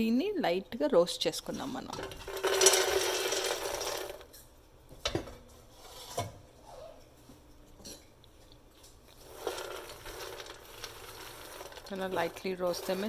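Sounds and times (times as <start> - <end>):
nuts rattling in a pan: 2.0 - 4.2, 9.2 - 13.0.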